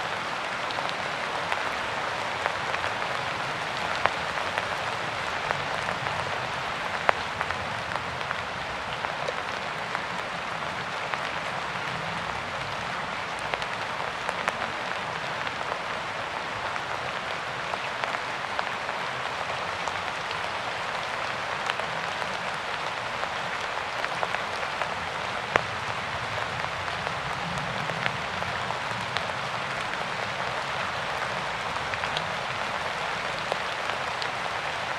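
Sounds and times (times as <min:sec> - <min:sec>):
steady rain patter: 0:00.0 - 0:34.9
raindrops ticking: 0:00.1 - 0:12.0.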